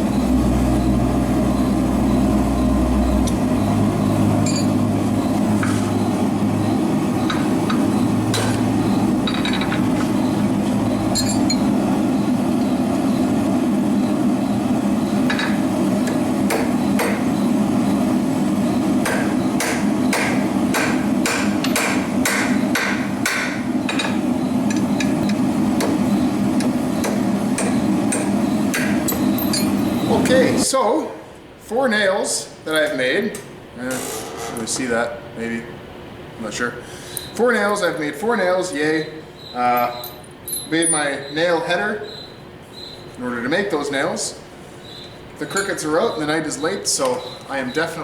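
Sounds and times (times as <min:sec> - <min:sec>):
hammer striking hot iron: 0:15.2 - 0:17.3, 0:19.0 - 0:29.7.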